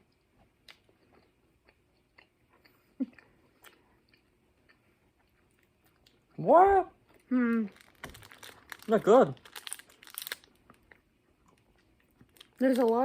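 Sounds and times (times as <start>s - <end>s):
person chewing: 0.0s - 6.4s.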